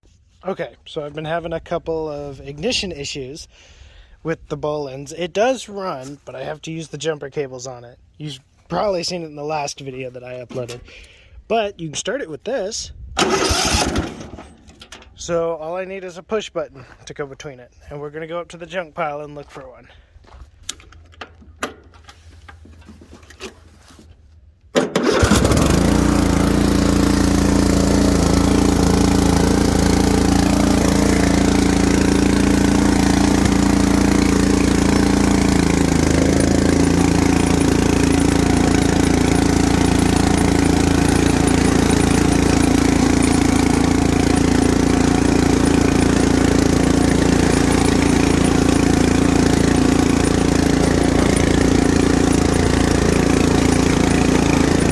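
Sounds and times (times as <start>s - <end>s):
riding lawn mower engine: 13.2s - 15.4s, 24.8s - 54.9s.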